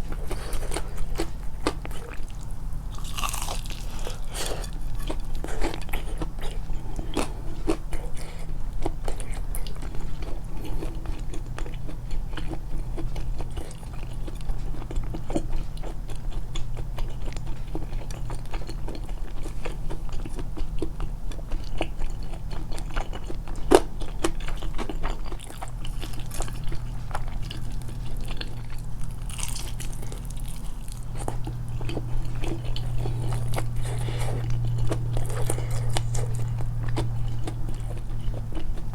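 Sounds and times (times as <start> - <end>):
chewing fried chicken: 0.0 - 38.9.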